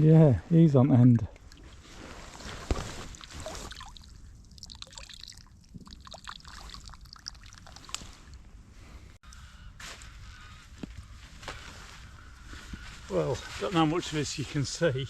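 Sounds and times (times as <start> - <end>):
trickling water: 1.2 - 8.5
small water splashes: 1.3 - 8.4.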